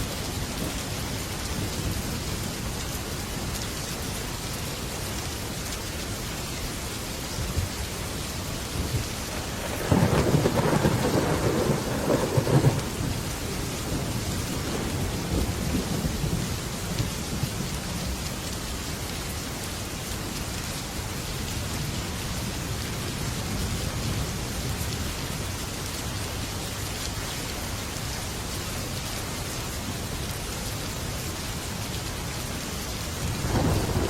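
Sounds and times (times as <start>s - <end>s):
heavy rain on a metal roof: 0.0s - 34.0s
thunderclap rumbling: 8.7s - 17.5s, 33.2s - 34.0s.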